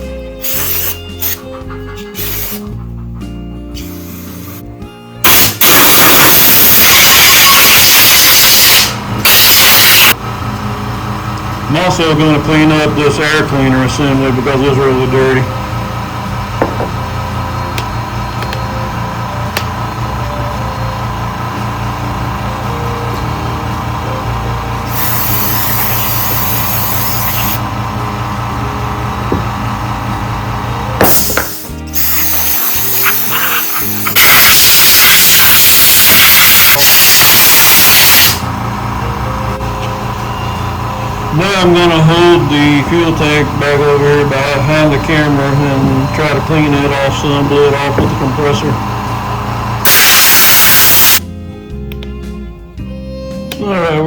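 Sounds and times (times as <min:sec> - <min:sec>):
pressurised spray hissing: 0:00.4 - 0:01.4, 0:02.2 - 0:02.8, 0:03.8 - 0:04.7, 0:24.9 - 0:27.6, 0:31.0 - 0:34.4
compressed air hissing: 0:00.4 - 0:01.5, 0:02.1 - 0:02.8, 0:03.7 - 0:10.2, 0:24.8 - 0:27.7, 0:31.0 - 0:38.5, 0:49.8 - 0:51.2
steady machine hum: 0:05.3 - 0:51.3.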